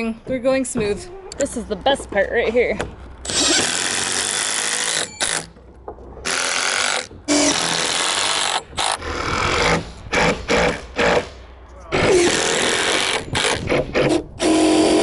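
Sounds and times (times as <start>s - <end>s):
impact driver driving fasteners: 3.2s - 5.6s, 12.0s - 15.0s.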